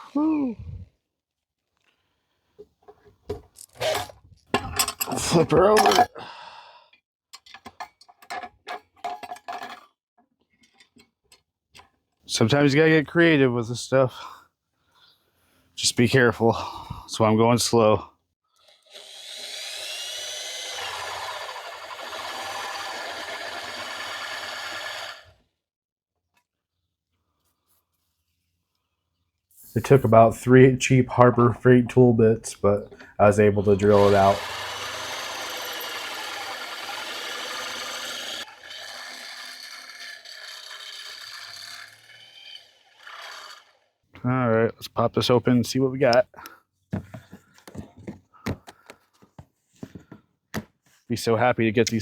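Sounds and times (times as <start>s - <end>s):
power drill cutting through metal: 18.6s - 25.4s, 33.6s - 43.9s.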